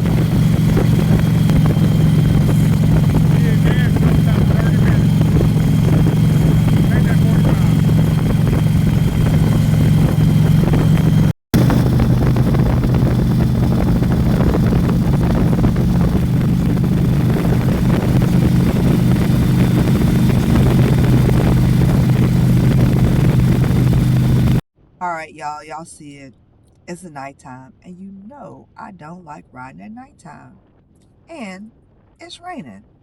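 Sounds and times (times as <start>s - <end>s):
motorcycle engine running: 0.0s - 24.6s
wind and road noise: 0.0s - 24.6s.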